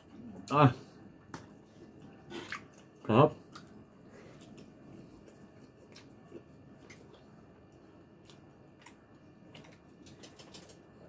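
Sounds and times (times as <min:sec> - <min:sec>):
soft chewing clicks and lip smacks: 0:01.2 - 0:11.0.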